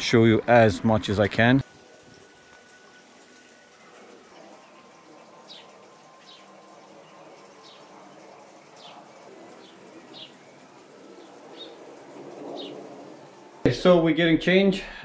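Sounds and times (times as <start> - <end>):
steady background noise: 0.0 - 14.6.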